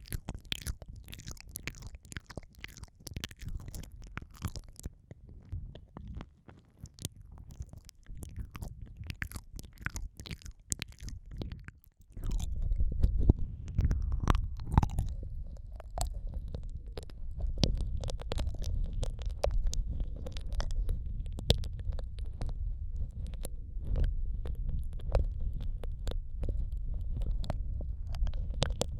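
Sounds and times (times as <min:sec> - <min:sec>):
wet mouth clicks and smacks: 0:00.0 - 0:28.9
low muffled rumble: 0:07.0 - 0:28.9.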